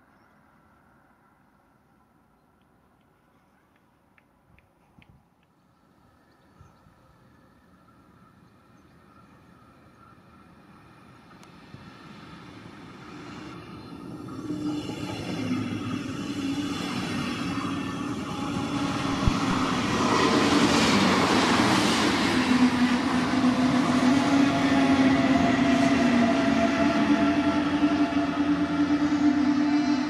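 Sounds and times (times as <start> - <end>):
electric train passing: 5.8 - 30.0
low humming tone: 17.8 - 20.2.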